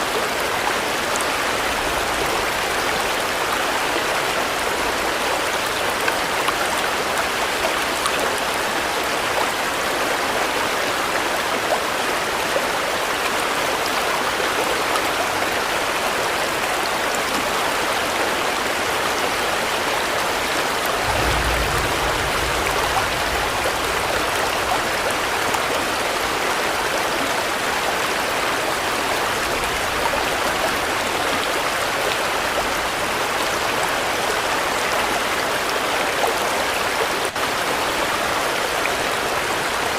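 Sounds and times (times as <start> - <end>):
steady rain pouring: 0.0 - 39.9
low rumble: 20.8 - 25.7.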